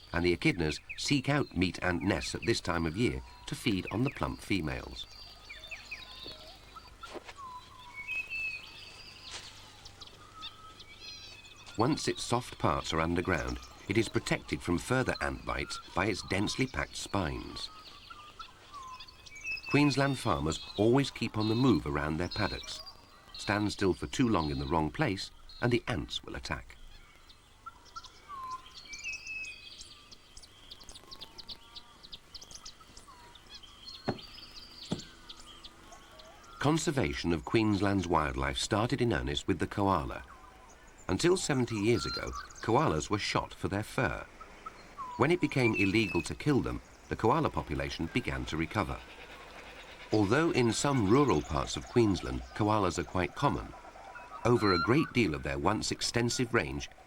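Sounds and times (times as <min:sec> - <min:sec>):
birds calling and chirping: 0:00.0 - 0:57.0
whistled sliding bird notes: 0:50.2 - 0:55.4.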